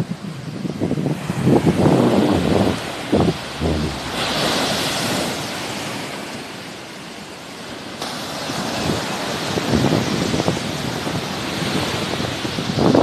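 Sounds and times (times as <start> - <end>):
wind rumbling on microphone: 0.0 - 5.8
sea waves washing on shore: 0.2 - 13.0.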